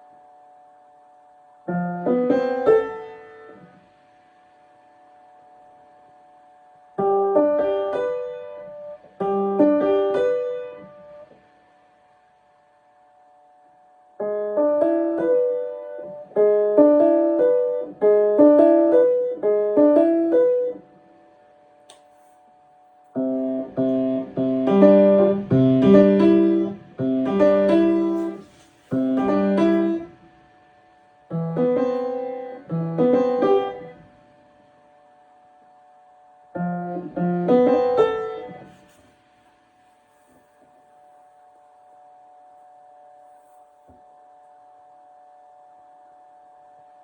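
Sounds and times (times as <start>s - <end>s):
piano played in short phrases: 14.2s - 20.9s, 23.2s - 30.3s, 31.3s - 34.2s, 36.5s - 38.9s.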